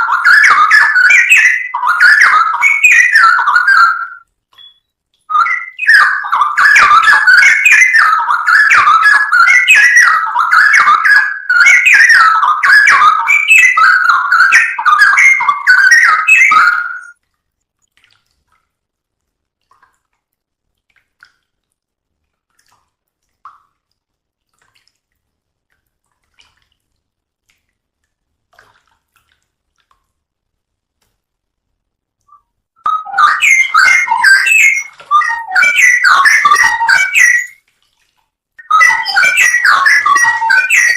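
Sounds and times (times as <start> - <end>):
bird warbling song: 0.0 - 4.2, 5.3 - 17.1, 32.9 - 37.6, 38.6 - 40.9.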